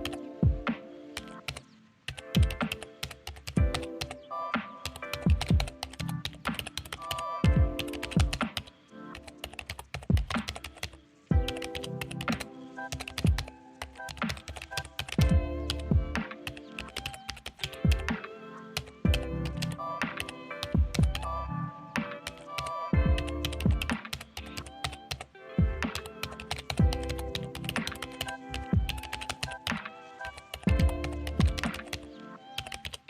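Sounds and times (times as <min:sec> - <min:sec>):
background music: 0:00.0 - 0:33.0
computer keyboard typing: 0:01.2 - 0:04.2, 0:04.8 - 0:21.3, 0:22.2 - 0:33.0.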